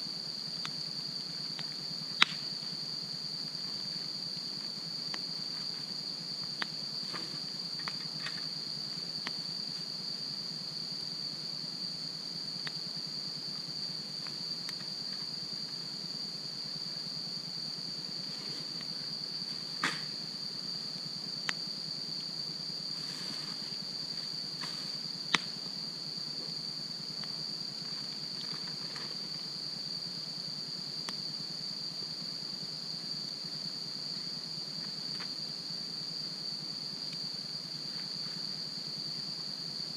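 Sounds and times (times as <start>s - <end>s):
crickets trilling: 0.0s - 39.9s
wood fire crackling and popping: 1.6s - 2.4s.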